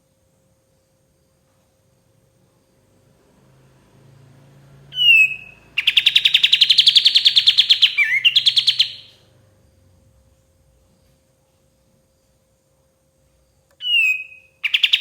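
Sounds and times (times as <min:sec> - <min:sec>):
bulbul singing: 0:04.8 - 0:09.3, 0:13.8 - 0:15.0.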